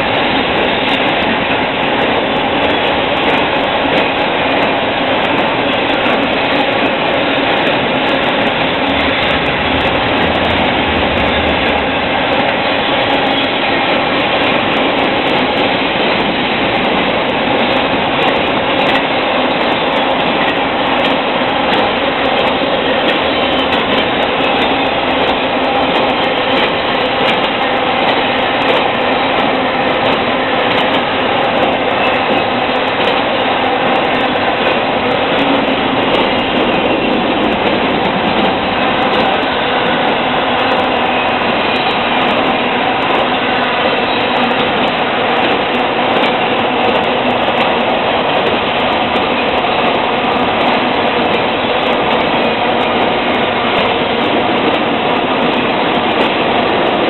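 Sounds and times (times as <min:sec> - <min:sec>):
freight train rolling past: 0:00.0 - 0:57.0.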